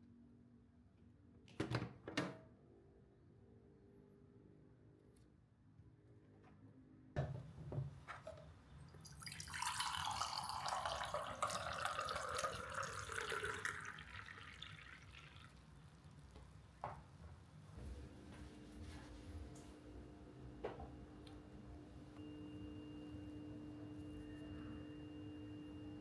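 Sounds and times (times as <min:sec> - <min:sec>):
liquid pouring: 0:08.3 - 0:16.3.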